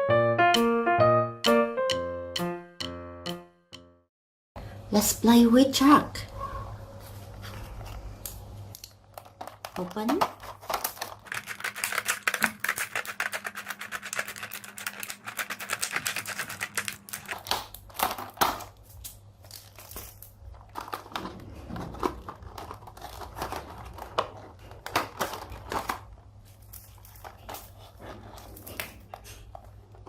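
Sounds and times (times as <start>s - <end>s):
plastic packaging crinkling: 7.2s - 30.0s.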